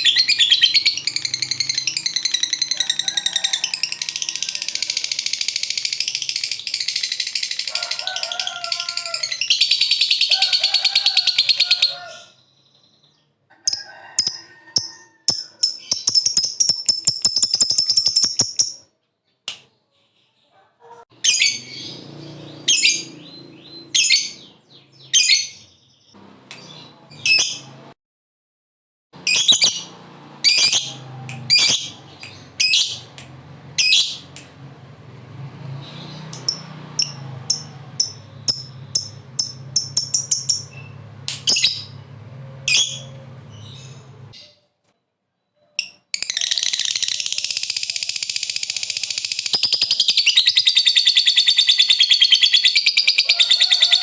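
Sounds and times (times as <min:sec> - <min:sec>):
lovebirds chirping: 0:00.0 - 0:03.0, 0:15.3 - 0:27.8, 0:35.8 - 0:44.8
lovebird rattling chatter: 0:00.0 - 0:11.6, 0:13.7 - 0:18.8, 0:46.1 - 0:53.4.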